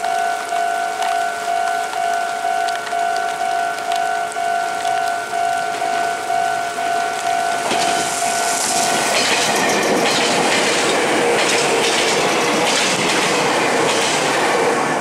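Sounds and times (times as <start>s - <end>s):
electric train passing at speed: 0.0s - 15.0s
wheels clattering over rail joints: 5.7s - 14.6s.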